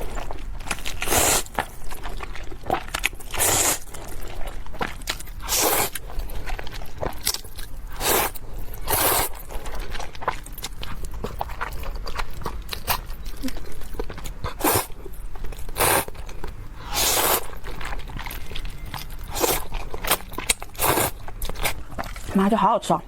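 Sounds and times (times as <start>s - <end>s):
quiet chewing: 0.0s - 22.6s
loud noisy eating bursts: 0.9s - 1.6s, 3.3s - 4.3s, 5.4s - 6.0s, 7.9s - 9.7s, 14.4s - 15.0s, 15.7s - 16.2s, 16.8s - 17.8s, 19.2s - 21.3s.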